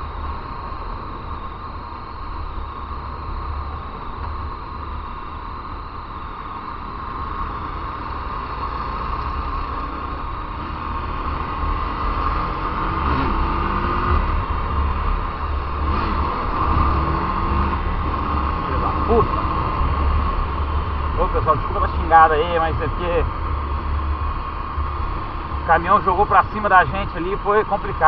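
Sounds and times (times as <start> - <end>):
motorcycle engine: 0.0 - 28.0
passing vehicles: 5.9 - 28.0.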